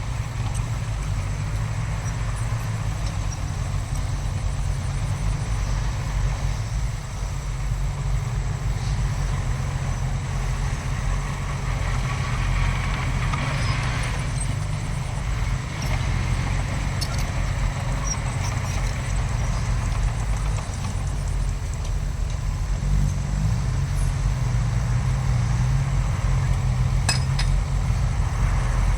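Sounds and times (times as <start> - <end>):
diesel machinery engine rumble: 0.0 - 28.9.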